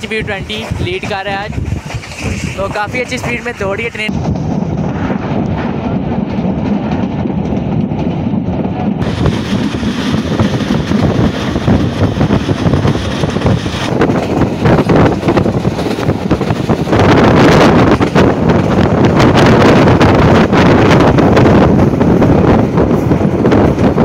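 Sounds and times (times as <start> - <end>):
sharp train clattering: 0.0 - 24.0
train wheels rumbling on track: 0.0 - 24.0
wind on microphone: 0.0 - 24.0.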